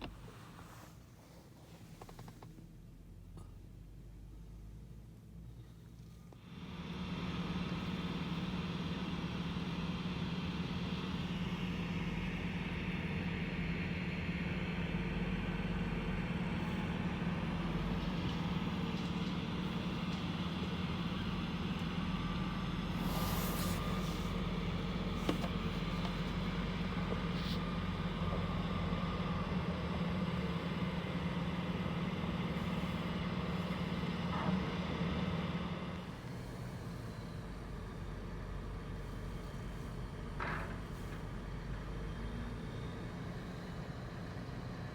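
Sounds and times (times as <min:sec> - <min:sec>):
dump truck engine running: 0:06.4 - 0:44.9
brief hiss: 0:23.0 - 0:24.4.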